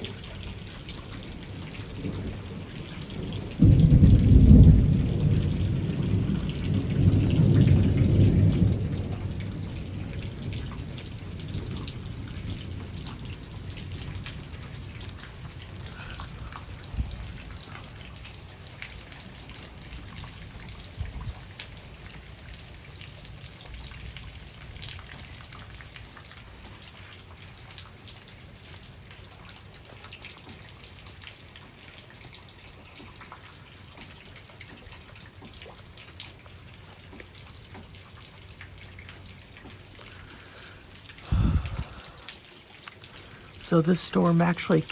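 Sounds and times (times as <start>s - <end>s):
steady rain falling: 0.0s - 44.9s
rolling thunder: 3.2s - 15.0s, 41.3s - 42.2s.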